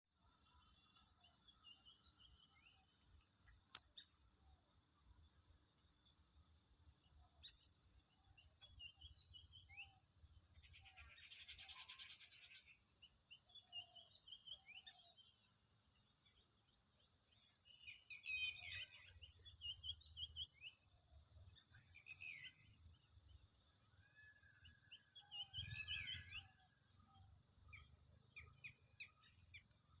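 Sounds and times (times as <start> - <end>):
birds chirping and calling: 8.2 - 15.4, 17.4 - 20.9, 24.3 - 30.0.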